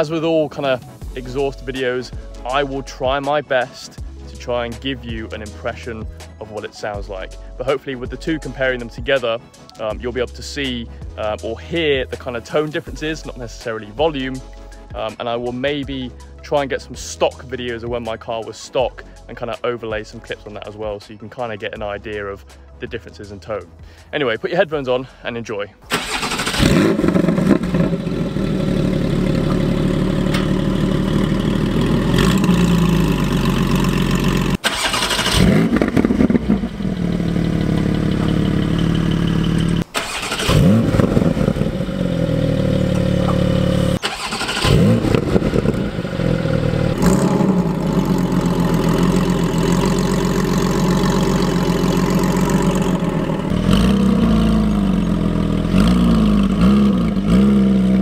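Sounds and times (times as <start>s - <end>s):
car exhaust revving: 26.2s - 58.0s.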